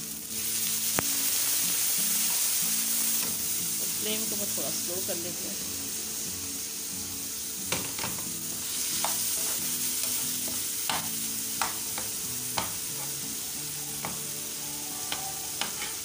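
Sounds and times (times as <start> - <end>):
food sizzling in oil: 0.0 - 16.0
metal spoon scraping pan: 9.0 - 10.6, 15.1 - 16.0.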